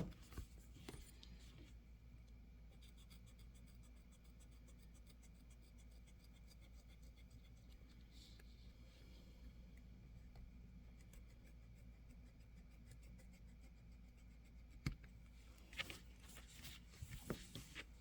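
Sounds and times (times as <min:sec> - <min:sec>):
faint scratching on plastic: 0:09.8 - 0:18.0.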